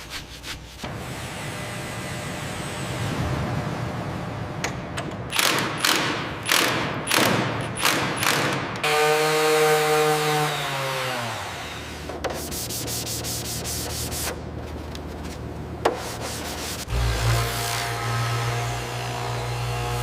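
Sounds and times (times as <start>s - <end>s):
sanding and rubbing: 0.0s - 0.9s, 11.9s - 14.4s, 15.9s - 18.0s
low hum: 0.8s - 7.9s.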